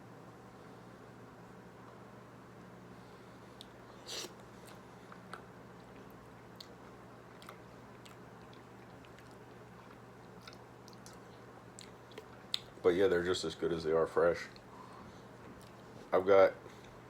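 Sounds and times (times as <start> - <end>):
soft chewing with wet clicks: 3.6 - 3.8, 4.4 - 12.8, 15.4 - 15.8.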